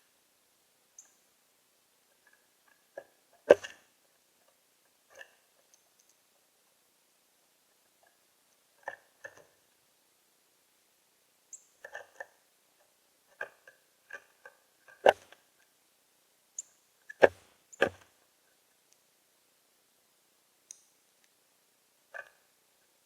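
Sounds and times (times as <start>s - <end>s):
birds pecking at feeder: 13.4s - 15.7s.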